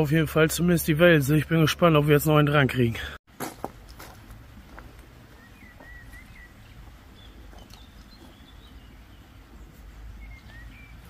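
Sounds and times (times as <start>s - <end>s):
faint high bird calls: 5.3s - 11.0s.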